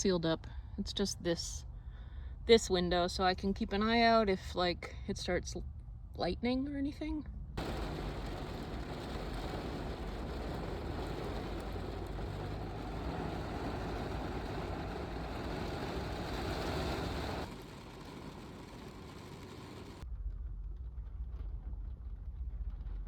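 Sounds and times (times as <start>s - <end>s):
rain and wind on a car: 7.6s - 23.0s.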